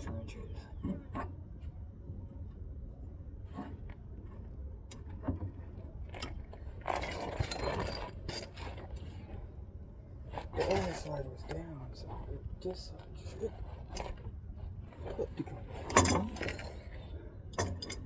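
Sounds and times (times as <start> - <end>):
metal wrenches clinking and scraping: 6.2 - 9.0, 15.0 - 18.0.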